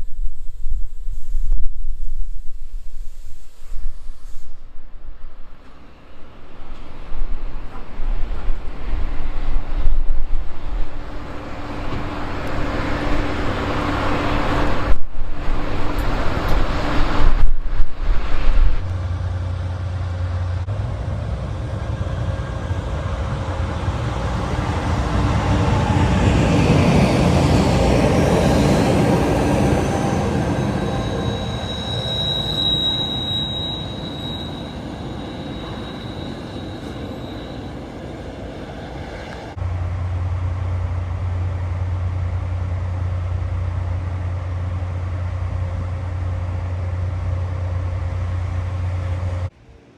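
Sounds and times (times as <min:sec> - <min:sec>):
train rumble: 0:00.0 - 0:49.9
high wheel squeal: 0:27.4 - 0:39.6.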